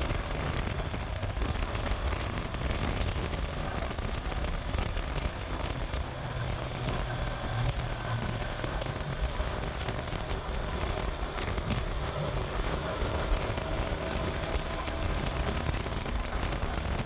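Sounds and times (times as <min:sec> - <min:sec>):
motorcycle engine humming: 0:00.0 - 0:17.0
wind and road noise: 0:00.0 - 0:17.0.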